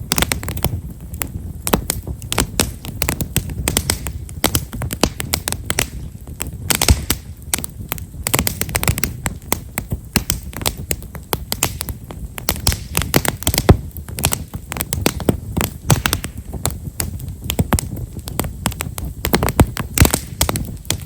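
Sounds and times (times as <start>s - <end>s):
campfire crackling: 0.0s - 21.0s
low rumble of flame: 0.0s - 21.0s.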